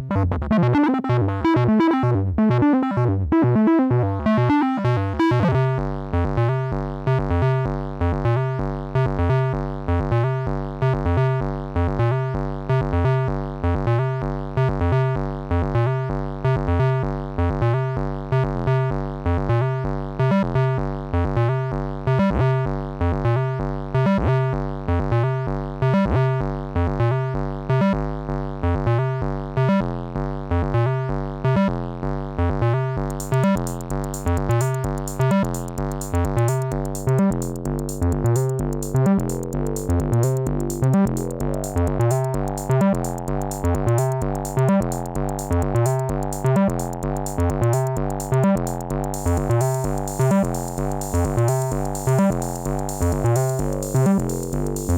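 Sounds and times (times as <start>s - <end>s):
looping acid synth sequence: 0.0s - 7.6s, 32.9s - 54.9s
fast high ticking hi-hats: 33.1s - 54.9s.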